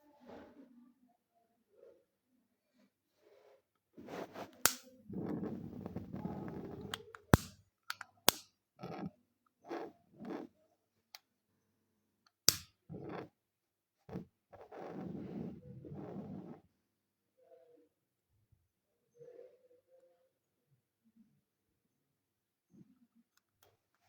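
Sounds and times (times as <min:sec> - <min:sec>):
sharp clicks: 0:04.7 - 0:04.9, 0:07.2 - 0:08.4, 0:12.5 - 0:12.7.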